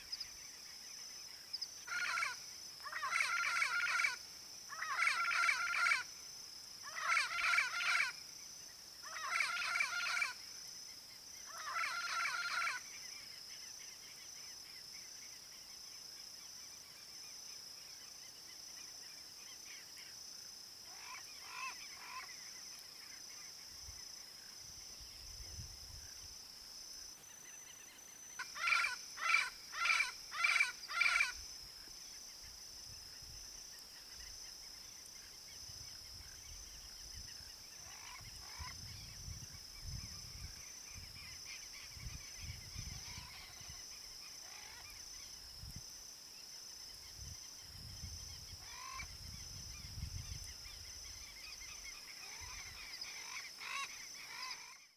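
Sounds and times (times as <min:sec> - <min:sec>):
parrots calling: 0:28.5 - 0:31.3.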